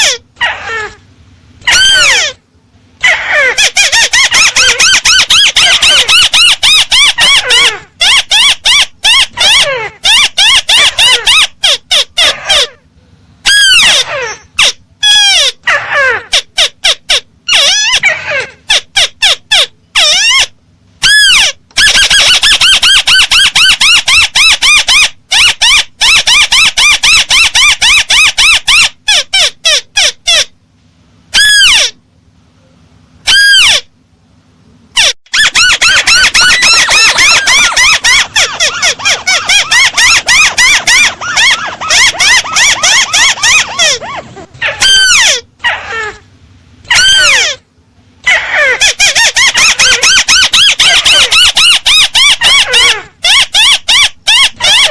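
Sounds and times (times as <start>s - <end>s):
crake calls: 34.9s - 47.6s.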